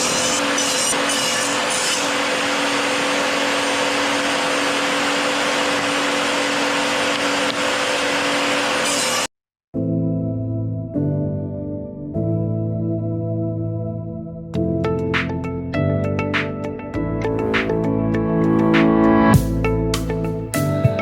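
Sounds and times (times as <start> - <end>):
wood rasping: 0.0 - 2.4
power tool motor whining: 0.0 - 9.3.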